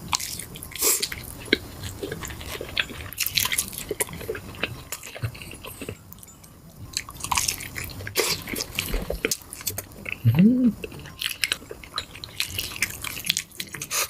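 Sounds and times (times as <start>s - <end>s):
person biting and chewing food: 0.0s - 6.3s, 6.9s - 14.0s
person humming: 10.2s - 10.8s.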